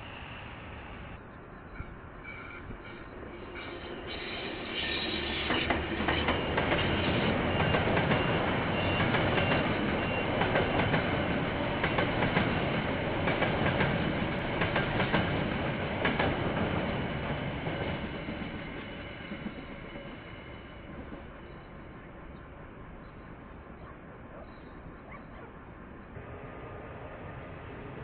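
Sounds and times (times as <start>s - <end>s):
train wheels clicking over rail joints: 1.7s - 23.9s.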